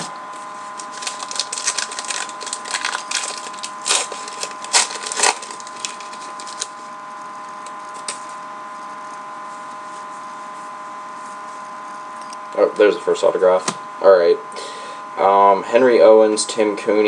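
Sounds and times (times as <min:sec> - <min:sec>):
steady background hum: 0:00.0 - 0:17.0
trading cards snapping and rustling: 0:00.8 - 0:06.8.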